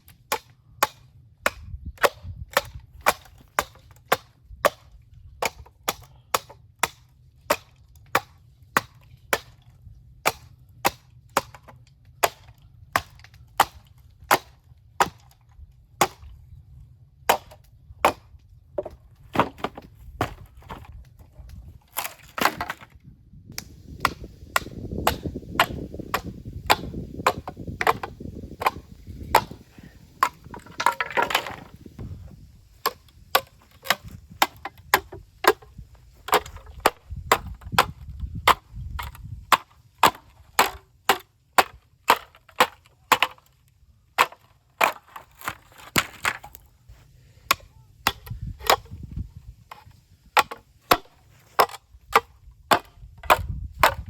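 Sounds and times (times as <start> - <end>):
bamboo cracking and popping in fire: 21.0 - 49.0, 49.6 - 54.0
low rumble of fire: 23.1 - 30.9.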